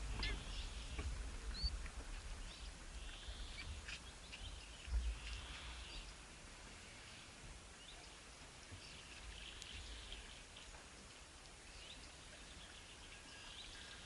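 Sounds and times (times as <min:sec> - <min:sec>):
low rumble: 0:00.0 - 0:03.5
small birds chirping: 0:00.0 - 0:14.0.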